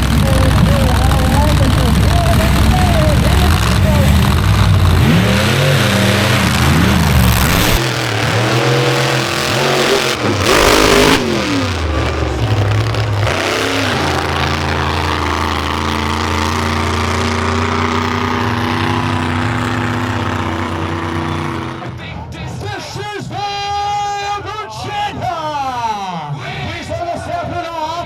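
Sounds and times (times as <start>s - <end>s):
truck engine revving: 0.0s - 22.2s.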